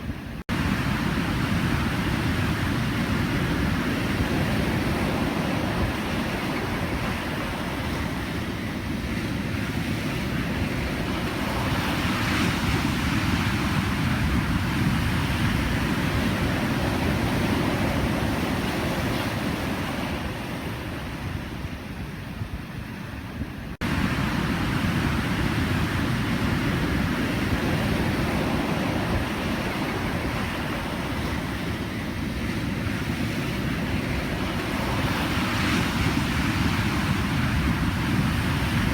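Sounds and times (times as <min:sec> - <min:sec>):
waves breaking: 0:10.1 - 0:21.8, 0:23.8 - 0:38.9.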